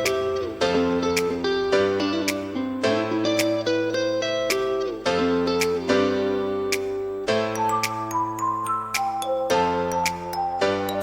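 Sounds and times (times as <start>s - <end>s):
soft click on the beat: 2.2s - 2.6s, 6.6s - 7.0s, 7.7s - 8.2s
high bell-like melody: 7.3s - 11.0s.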